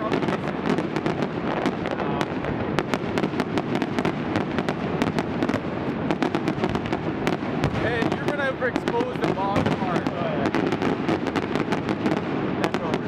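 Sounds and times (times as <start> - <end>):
fireworks cracks and bangs: 0.0 - 13.0.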